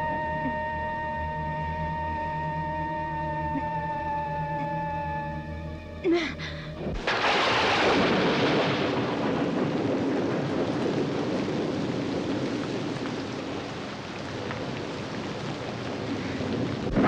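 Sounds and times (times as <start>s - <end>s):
heavy rain: 0.0s - 1.5s, 6.1s - 17.0s
thunder rolling: 6.8s - 17.0s.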